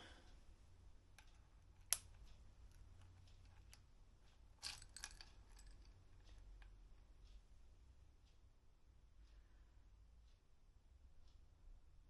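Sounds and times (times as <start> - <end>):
metal tools clicking: 4.6 - 6.7.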